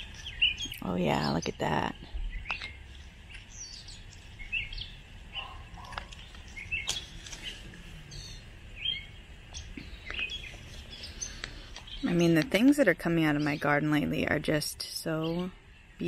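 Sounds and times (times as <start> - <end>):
faint outdoor background: 0.0 - 16.0
clicks and rustles of netting: 5.6 - 7.8.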